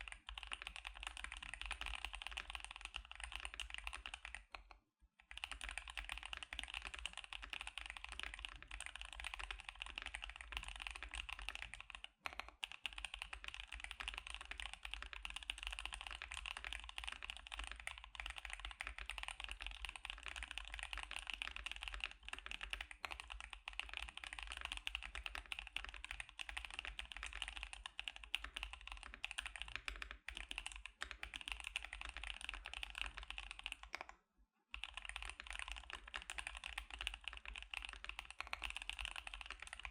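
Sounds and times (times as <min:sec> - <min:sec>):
rapid mechanical keyboard typing: 0:00.0 - 0:04.6, 0:05.3 - 0:34.1, 0:34.7 - 0:39.9.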